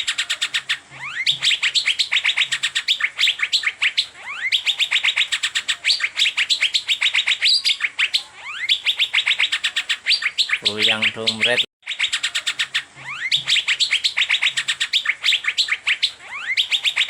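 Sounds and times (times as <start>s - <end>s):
bird chirping rapidly: 0.0s - 17.0s
bird rising whistles: 0.0s - 17.0s.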